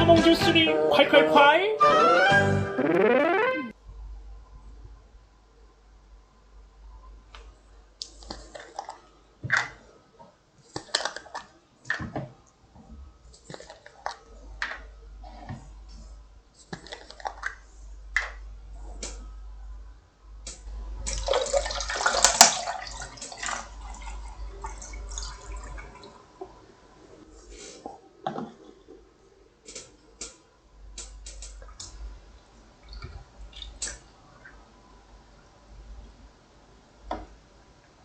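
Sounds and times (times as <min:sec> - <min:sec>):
drinking clicks and gulps: 0:13.4 - 0:14.9
liquid gushing: 0:21.1 - 0:26.0.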